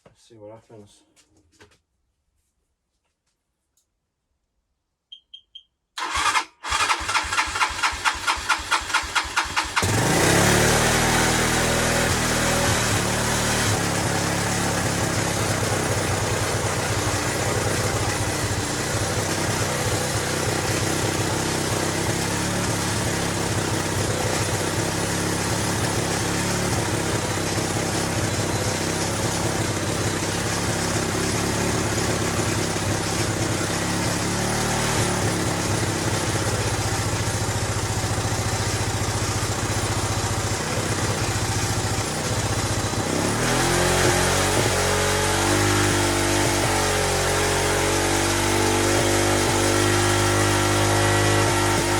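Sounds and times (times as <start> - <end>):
motorcycle engine idling: 6.0 - 43.5.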